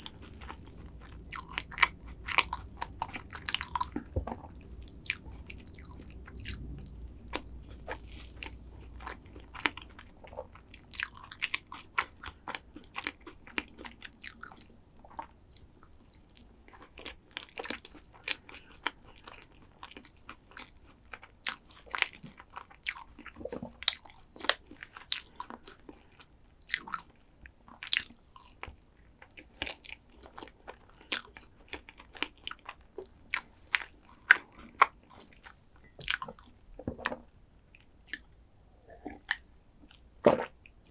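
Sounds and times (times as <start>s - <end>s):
crunchy biting and chewing: 0.0s - 14.6s.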